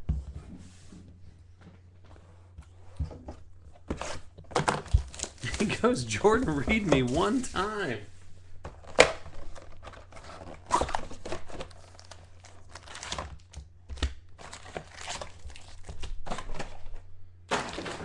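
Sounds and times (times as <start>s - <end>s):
card wrappers tearing and crinkling: 3.9s - 8.0s, 8.8s - 16.9s
cards shuffled by hand: 3.9s - 8.0s.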